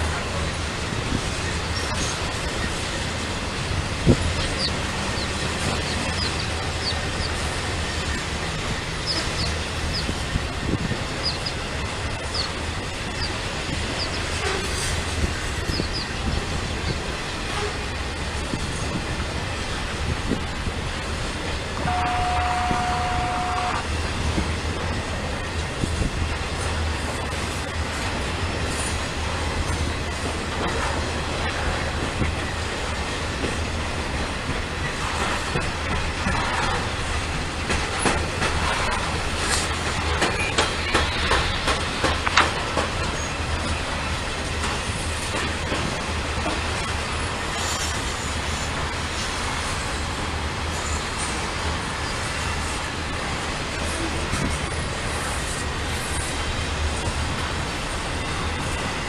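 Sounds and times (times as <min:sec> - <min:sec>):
freight train cars rumbling: 0:00.0 - 0:59.0
rail clatter: 0:00.0 - 0:59.0
high squeaks of train wheels: 0:01.5 - 0:02.9, 0:04.1 - 0:18.0, 0:38.0 - 0:42.0, 0:42.9 - 0:45.2, 0:46.5 - 0:50.0, 0:50.7 - 0:52.8, 0:53.8 - 0:56.6.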